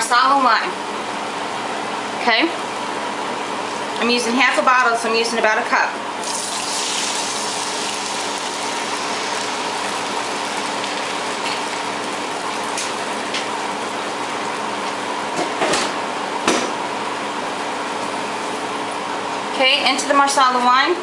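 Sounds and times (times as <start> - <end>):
wine sizzling in butter: 6.2 - 14.7.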